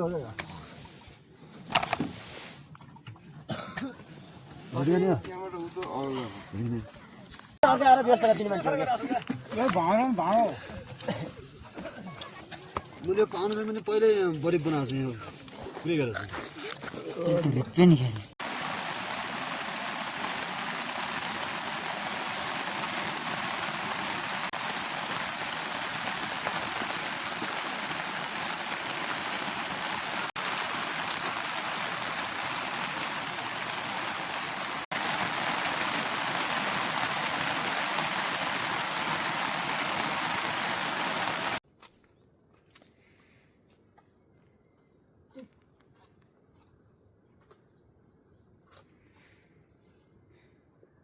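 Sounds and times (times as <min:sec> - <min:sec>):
heavy rain falling: 0:18.4 - 0:41.6.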